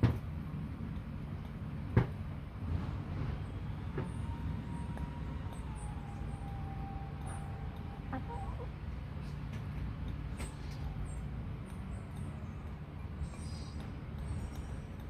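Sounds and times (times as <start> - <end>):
hens clucking softly: 7.3 - 9.3.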